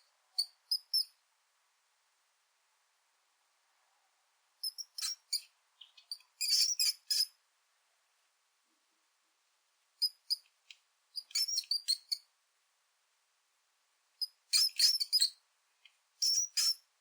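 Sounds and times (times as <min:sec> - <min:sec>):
mouse squeaks: 0:00.3 - 0:01.2, 0:04.6 - 0:07.4, 0:10.0 - 0:10.5, 0:11.2 - 0:12.3, 0:14.2 - 0:15.4, 0:16.2 - 0:16.9.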